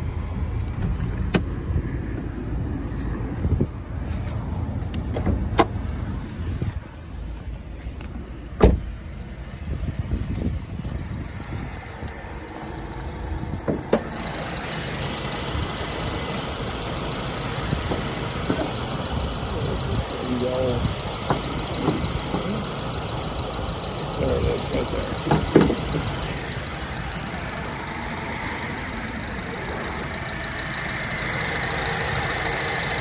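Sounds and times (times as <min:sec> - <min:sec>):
car engine idling: 0:00.0 - 0:33.0
car door shutting: 0:04.9 - 0:05.9, 0:08.5 - 0:09.0, 0:13.5 - 0:14.2, 0:25.0 - 0:26.3
hood latch clack: 0:25.2 - 0:26.2.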